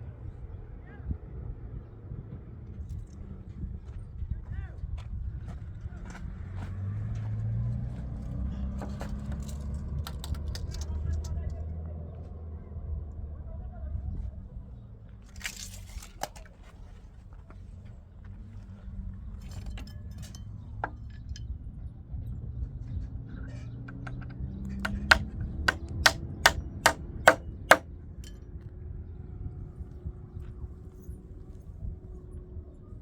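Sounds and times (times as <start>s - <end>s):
sharp knocks: 23.9s - 27.8s.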